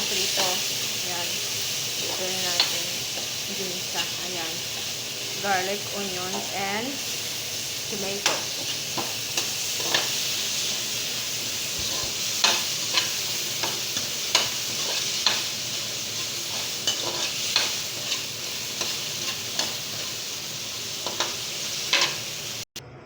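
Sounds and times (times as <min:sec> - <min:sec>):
vegetables sizzling in hot oil: 0:00.0 - 0:22.7
utensil scraping a pan: 0:11.8 - 0:20.2.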